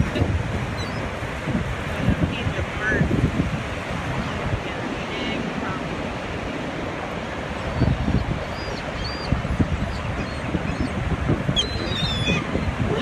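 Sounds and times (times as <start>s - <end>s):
seagulls calling: 0.0s - 1.2s, 7.6s - 13.0s
surf: 0.0s - 13.0s
wind buffeting microphone: 0.0s - 13.0s.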